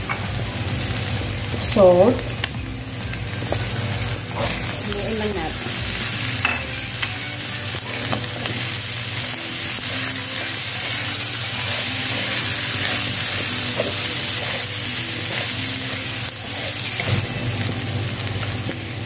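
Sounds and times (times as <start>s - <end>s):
meat sizzling in a pan: 0.0s - 19.0s
wooden spatula scraping a pan: 11.6s - 17.2s.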